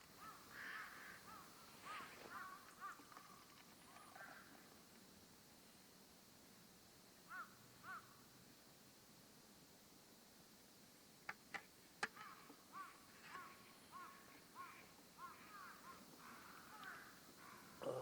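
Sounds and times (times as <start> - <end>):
bird calling faintly: 0.0 - 4.8, 7.3 - 8.2, 12.0 - 18.0.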